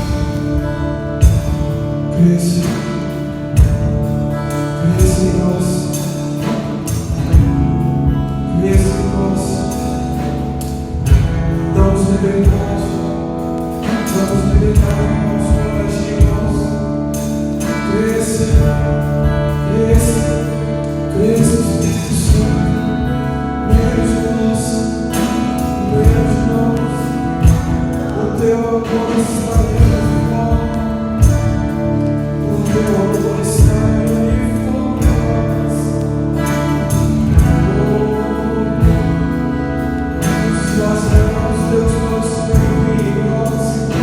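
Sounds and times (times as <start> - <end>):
drum hits: 0.0 - 1.8
sung worship song: 0.0 - 44.0
worship band playing: 0.0 - 44.0.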